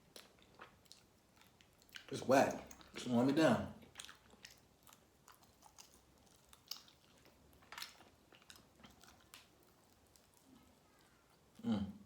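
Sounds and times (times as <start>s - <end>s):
chewing chicken wing: 3.8s - 11.9s.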